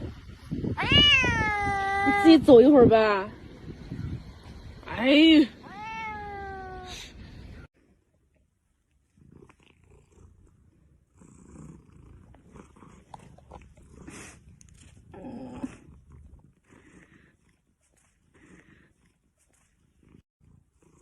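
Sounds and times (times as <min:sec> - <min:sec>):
pet animal purring: 0:09.0 - 0:21.0.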